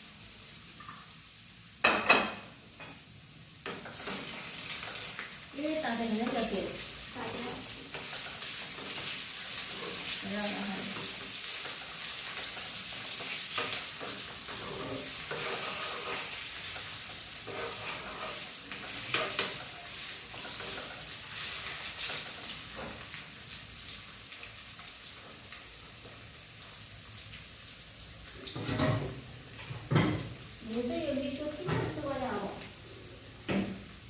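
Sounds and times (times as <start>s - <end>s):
greens sizzling in a pan: 0.0s - 34.0s
spoon scraping and knocking pan: 10.9s - 23.1s.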